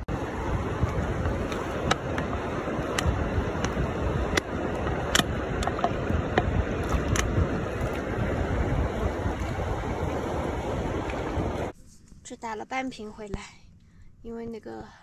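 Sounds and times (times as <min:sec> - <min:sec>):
shallow creek rushing: 0:00.0 - 0:11.7
wind on microphone: 0:00.0 - 0:11.7
sharp clicks and knocks: 0:02.9 - 0:07.3.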